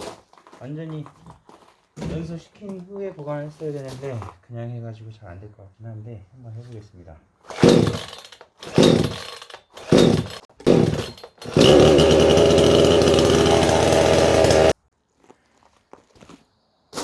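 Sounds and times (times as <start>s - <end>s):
chainsaw engine running: 7.5s - 14.8s
starter cord pulls: 7.5s - 14.8s.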